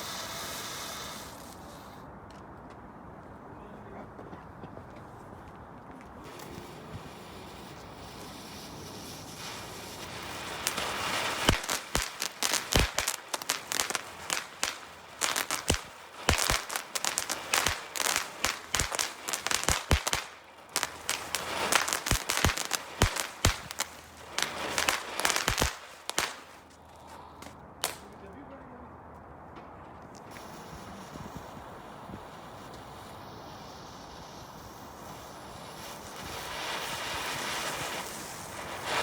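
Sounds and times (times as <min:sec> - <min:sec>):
rising hiss: 0:00.0 - 0:02.1, 0:06.2 - 0:26.7, 0:30.3 - 0:39.0
firecrackers banging: 0:06.3 - 0:26.8, 0:27.4 - 0:28.2.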